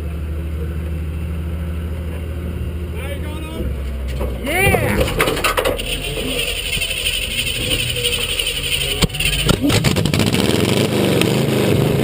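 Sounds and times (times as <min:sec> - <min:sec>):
racing truck engine running: 0:00.0 - 0:12.0.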